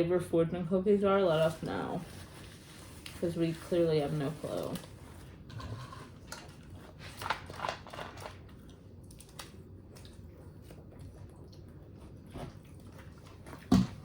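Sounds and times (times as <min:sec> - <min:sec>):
crisp crunching and chewing: 0:04.8 - 0:13.8.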